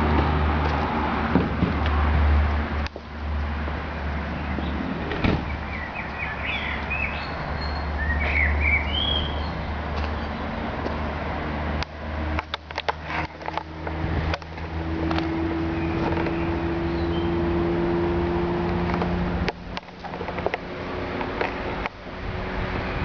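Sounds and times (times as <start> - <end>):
birds chirping: 4.0 - 10.6, 15.6 - 17.6.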